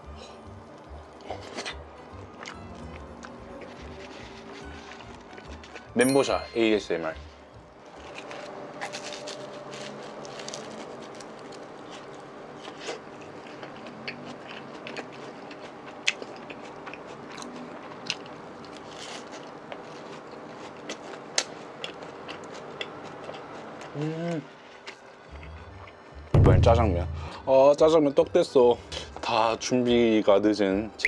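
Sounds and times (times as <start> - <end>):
crunchy biting and chewing: 1.2 - 6.0, 7.8 - 26.0.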